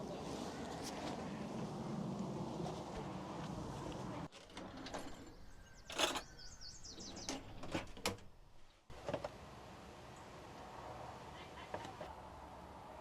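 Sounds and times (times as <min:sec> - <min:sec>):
sharp clicks and knocks: 0:04.4 - 0:09.2.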